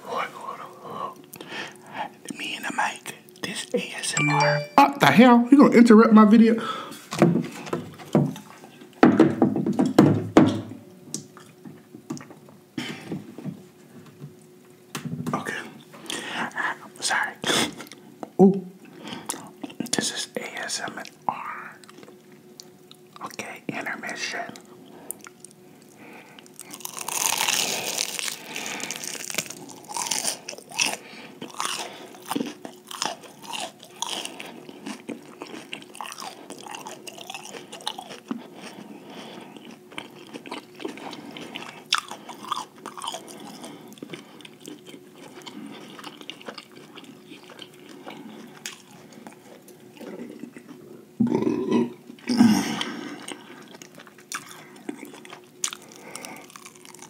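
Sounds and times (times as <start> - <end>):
crunchy chewing: 24.5 - 57.0.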